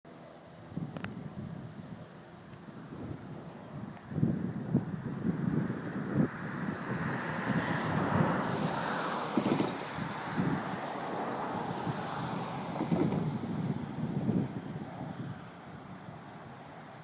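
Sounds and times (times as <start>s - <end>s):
freight train rumbling by: 0.1s - 17.0s
wind buffeting microphone: 0.6s - 17.0s.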